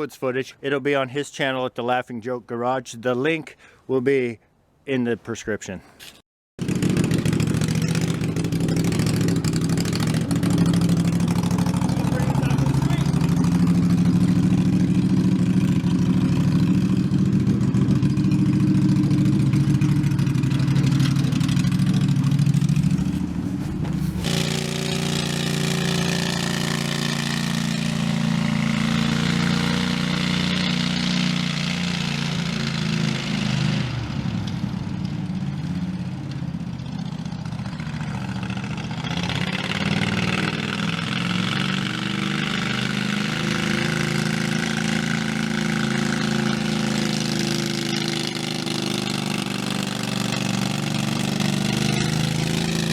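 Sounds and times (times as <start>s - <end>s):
engine running: 6.6s - 52.9s
quieter engine with hiss: 6.8s - 33.6s.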